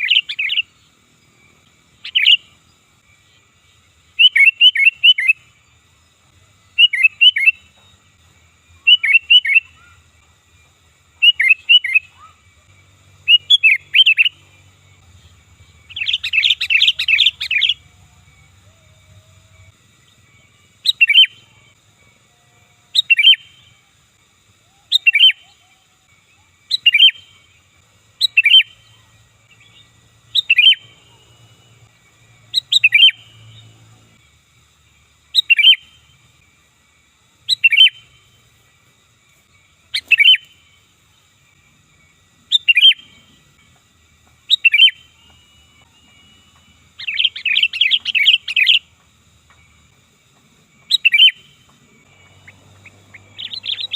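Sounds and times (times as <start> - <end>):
bird calling: 0.0 - 0.8, 2.0 - 2.6, 4.1 - 5.4, 6.8 - 7.8, 8.8 - 10.2, 11.2 - 23.8, 24.5 - 34.2, 35.3 - 36.4, 37.4 - 38.4, 39.5 - 40.9, 42.2 - 53.9
bird chattering: 15.9 - 17.8, 52.2 - 53.9.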